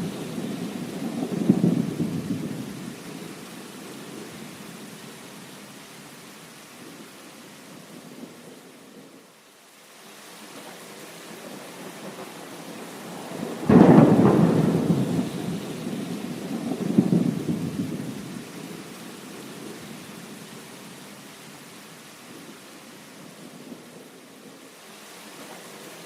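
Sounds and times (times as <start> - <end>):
thunder rumbling: 0.0 - 4.3, 11.3 - 19.9
rain hissing: 0.0 - 26.0.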